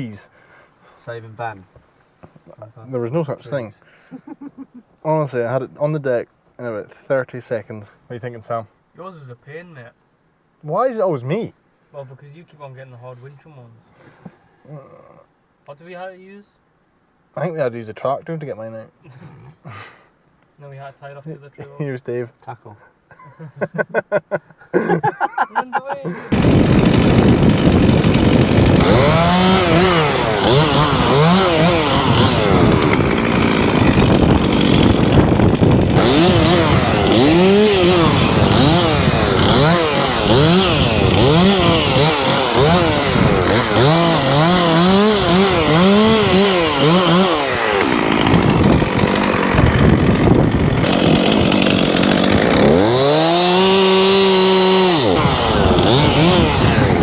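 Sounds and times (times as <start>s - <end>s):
chainsaw cutting: 26.2s - 57.0s.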